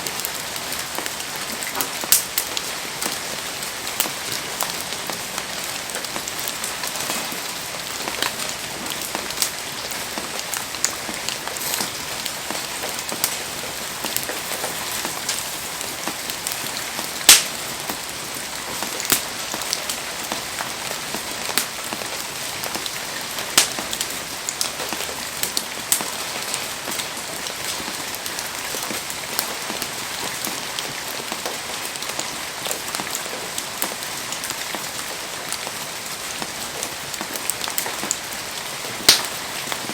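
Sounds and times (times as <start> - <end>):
heavy rain hissing: 0.0 - 39.9
sharp cracks and pops: 17.3 - 17.6, 19.1 - 19.9, 23.6 - 26.2, 39.0 - 39.9.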